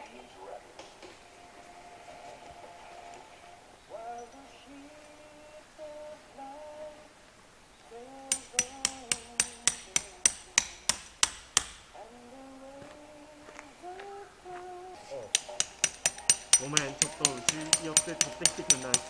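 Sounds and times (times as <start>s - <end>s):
hammer striking metal tent peg: 8.3s - 12.0s, 15.3s - 19.0s.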